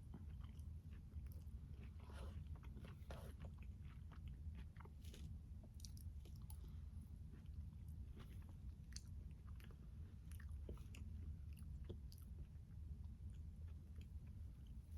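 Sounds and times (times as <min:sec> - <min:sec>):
close chewing with wet crunches: 0:00.0 - 0:14.8
steady low hum: 0:00.0 - 0:14.9.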